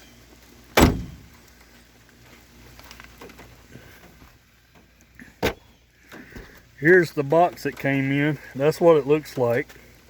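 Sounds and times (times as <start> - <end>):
heavy thump: 0.8 - 1.4
faint clicks and rustles: 1.2 - 10.0.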